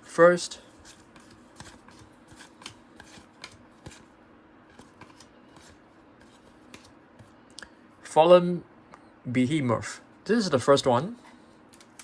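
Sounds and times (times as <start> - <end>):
trading cards being handled: 0.6 - 7.4.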